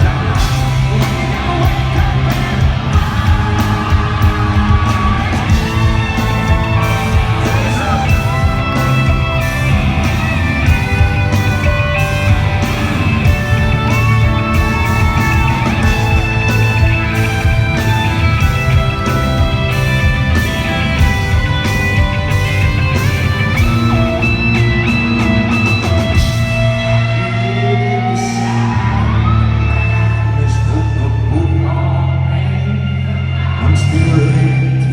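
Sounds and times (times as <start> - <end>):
person singing: 0.0 - 19.1
bass guitar: 0.0 - 34.9
distorted electric guitars: 0.0 - 34.9
drums: 0.0 - 34.9.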